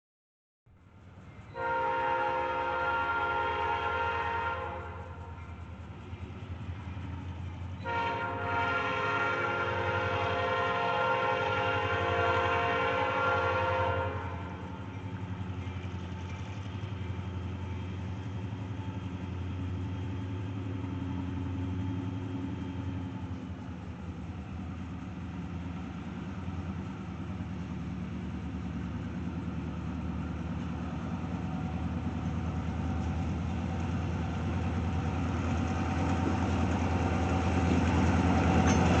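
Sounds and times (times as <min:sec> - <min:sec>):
diesel locomotive rumble: 0:00.7 - 0:39.0
train horn blasts: 0:01.5 - 0:05.5, 0:07.8 - 0:15.0.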